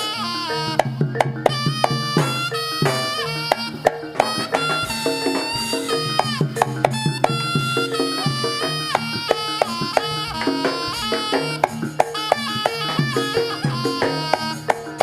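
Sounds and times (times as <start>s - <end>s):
reedy wind instrument melody: 0.0s - 15.0s
sharp drum strokes: 0.7s - 15.0s.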